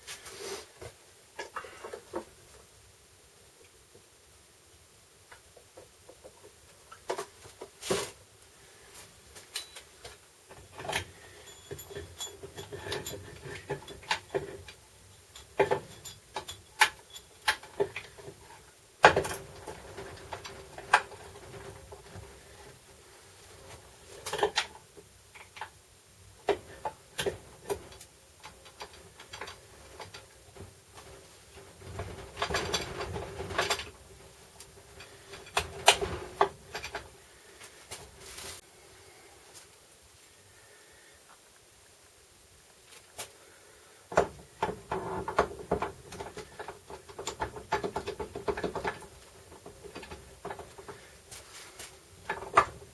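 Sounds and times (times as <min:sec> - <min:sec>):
faint steady hum: 0:00.0 - 0:52.9.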